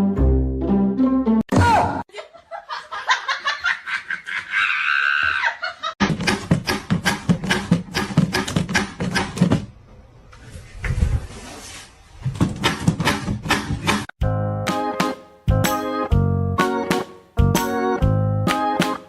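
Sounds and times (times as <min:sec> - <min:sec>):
person laughing: 0:02.1 - 0:06.0.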